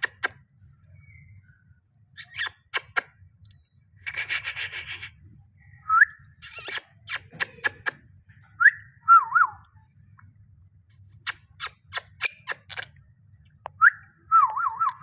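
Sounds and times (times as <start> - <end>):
parrot raspy scratching: 0.0 - 0.3, 2.2 - 3.1, 4.0 - 5.1, 6.4 - 8.0, 11.1 - 12.9
parrot rising chirp: 14.6 - 15.0.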